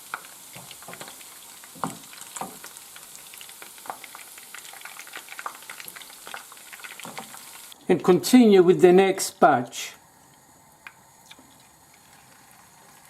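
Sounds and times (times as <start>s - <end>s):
meatballs sizzling in oil: 0.0s - 7.8s, 10.1s - 13.0s.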